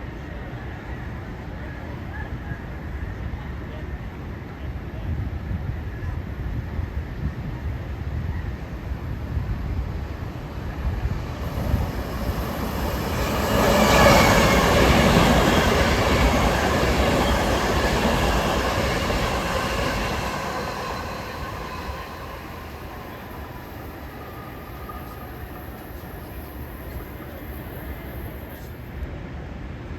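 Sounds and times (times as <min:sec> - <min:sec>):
train passing: 0:06.4 - 0:29.9.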